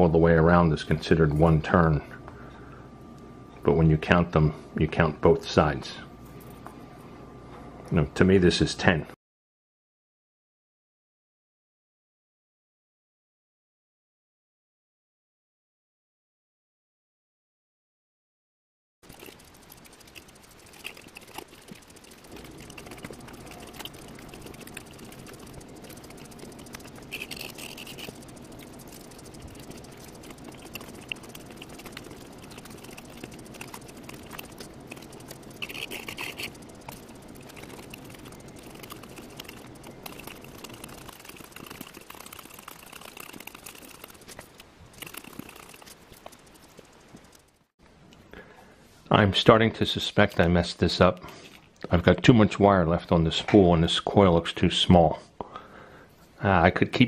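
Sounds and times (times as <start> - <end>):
low steady hum: 0.0 - 9.2, 19.0 - 57.0
wire scraping and ticking: 19.0 - 47.7, 49.8 - 52.4.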